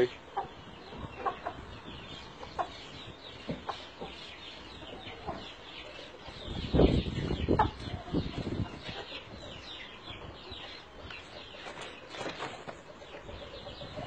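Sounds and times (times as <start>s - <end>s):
chickens clucking: 0.0s - 14.0s
thumps and wing flapping: 11.6s - 12.9s.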